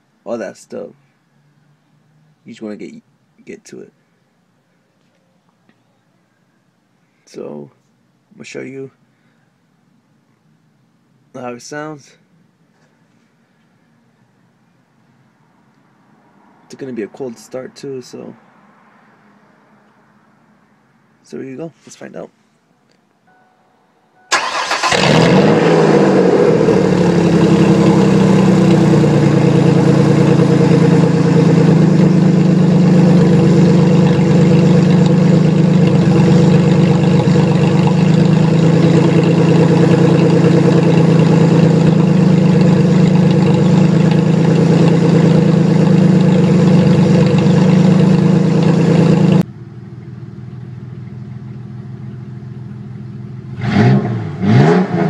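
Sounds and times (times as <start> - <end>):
car engine idling loudly: 24.4 - 53.6.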